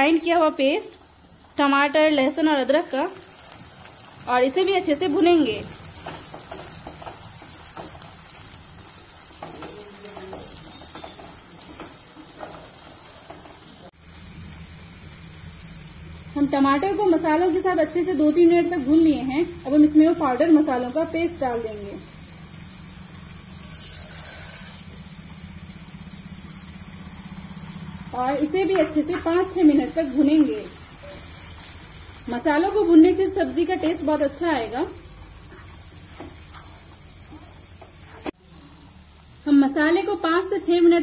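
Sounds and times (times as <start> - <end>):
paste sizzling in hot oil: 0.0 - 40.9.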